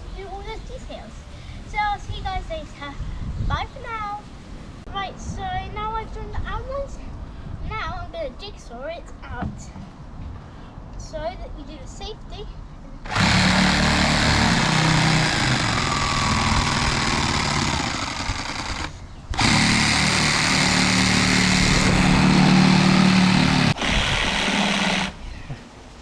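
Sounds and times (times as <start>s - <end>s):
electric jigsaw cutting plywood: 13.1s - 25.2s.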